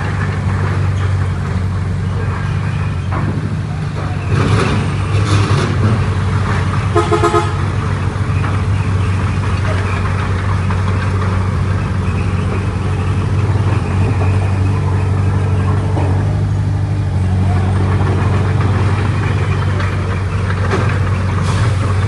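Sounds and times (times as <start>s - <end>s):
heavy diesel engine running: 0.0s - 22.0s
vehicle horn toot: 6.9s - 7.7s.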